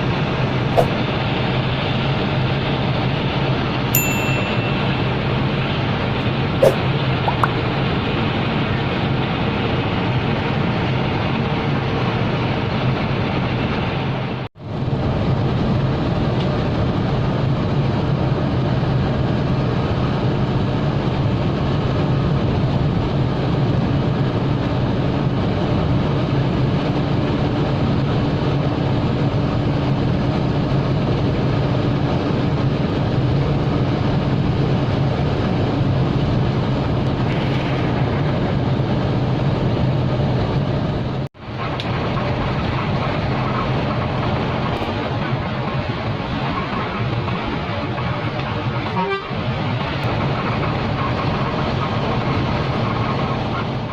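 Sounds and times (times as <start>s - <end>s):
road noise: 0.0s - 17.4s, 32.7s - 53.9s
bus engine hum: 0.0s - 53.9s.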